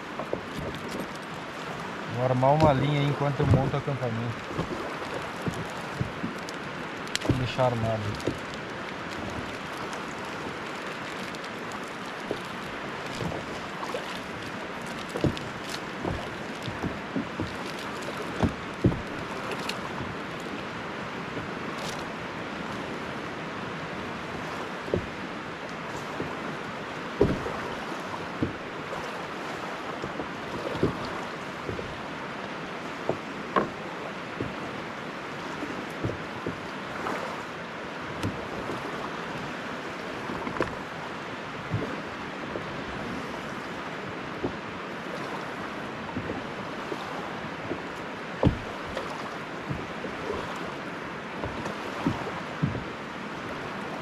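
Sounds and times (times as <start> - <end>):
flowing river water: 0.0 - 54.0
sharp knocks and clicks: 2.6 - 9.5, 14.1 - 20.5, 27.2 - 27.5, 28.4 - 28.6, 33.1 - 33.8, 48.4 - 49.0.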